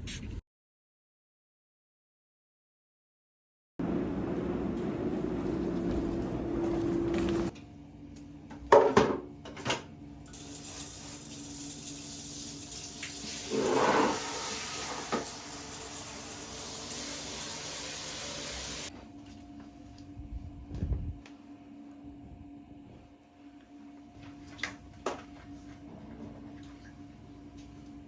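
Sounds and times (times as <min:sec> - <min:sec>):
water running from tap: 0:10.3 - 0:18.9.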